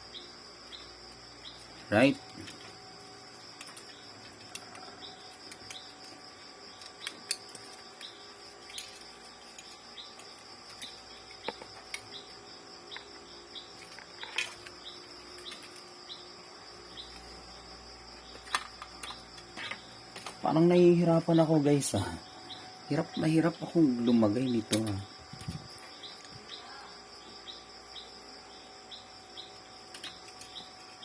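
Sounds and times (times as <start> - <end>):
insects chirring: 0.0 - 31.0
plastic parts clicking: 18.4 - 20.4.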